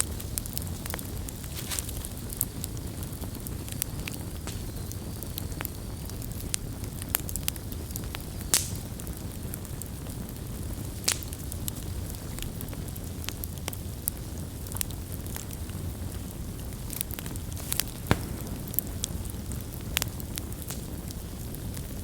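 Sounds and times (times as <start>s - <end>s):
campfire crackling: 0.0s - 22.0s.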